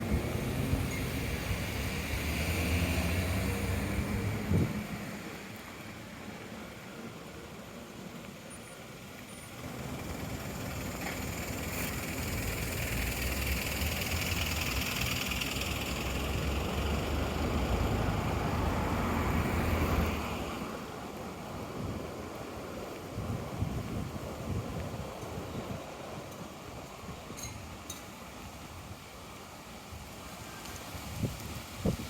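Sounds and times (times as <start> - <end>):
wind rumble on microphone: 0.0 - 5.3, 21.4 - 27.8, 30.0 - 32.0
leaves rustling in wind: 0.0 - 32.0.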